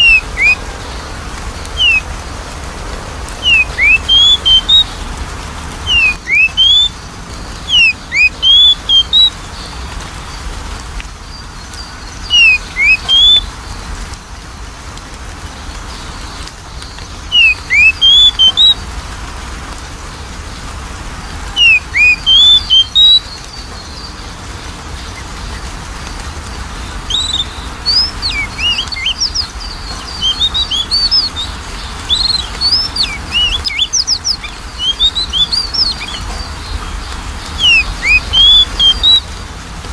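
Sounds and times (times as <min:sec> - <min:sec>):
bird singing whistled notes: 0:00.0 - 0:02.4, 0:03.3 - 0:05.1, 0:05.8 - 0:09.8, 0:11.3 - 0:13.6, 0:16.1 - 0:18.8, 0:21.5 - 0:24.3, 0:26.7 - 0:39.3.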